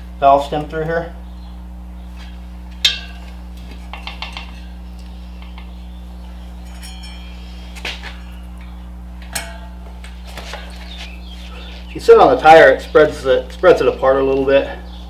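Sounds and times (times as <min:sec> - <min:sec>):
steady low hum: 0:00.0 - 0:15.0
light metallic clinks and knocks: 0:06.6 - 0:10.8.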